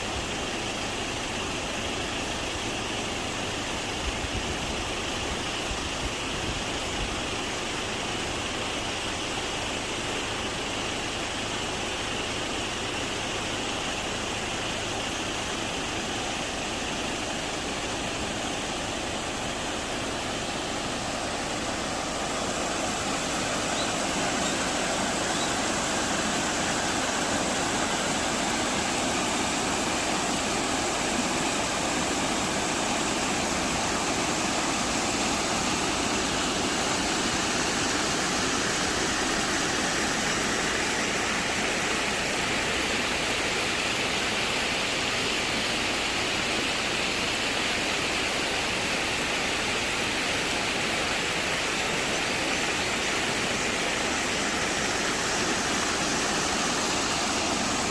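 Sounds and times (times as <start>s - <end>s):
stream rushing over rocks: 0.0s - 57.9s.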